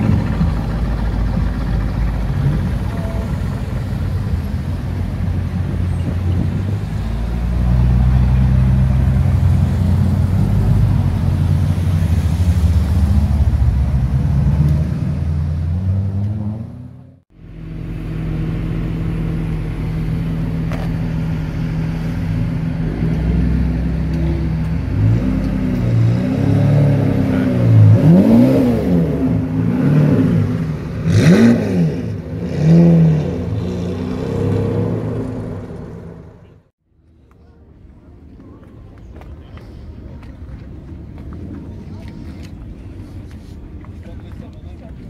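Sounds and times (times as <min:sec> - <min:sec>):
sports car engine revving: 0:18.1 - 0:36.3.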